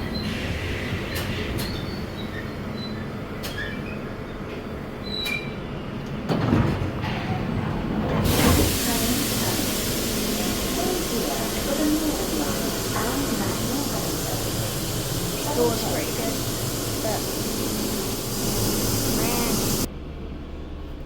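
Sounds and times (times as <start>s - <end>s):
train rumbling in tunnel: 0.0s - 21.0s
short high wheel squeals: 1.6s - 4.4s, 5.0s - 5.6s.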